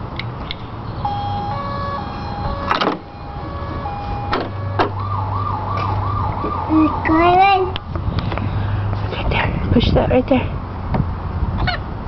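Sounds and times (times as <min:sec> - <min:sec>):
toy electronic beeping tune: 0:01.0 - 0:04.4
electronic siren wailing: 0:01.0 - 0:07.1.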